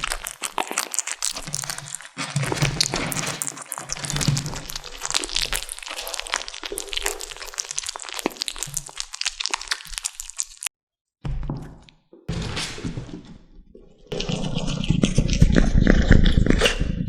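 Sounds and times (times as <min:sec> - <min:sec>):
kittens crunching bone: 0:00.0 - 0:10.7.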